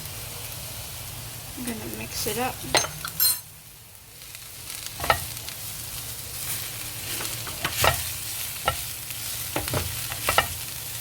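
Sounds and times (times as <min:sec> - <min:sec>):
food sizzling in hot oil: 0:00.0 - 0:11.0
spoon scraping and knocking pan: 0:05.0 - 0:05.4, 0:07.0 - 0:10.7.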